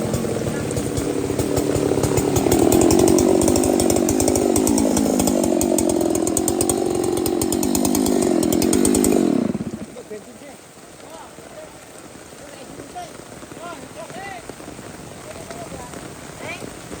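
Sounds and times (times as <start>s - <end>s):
chainsaw at full throttle: 0.0s - 10.4s.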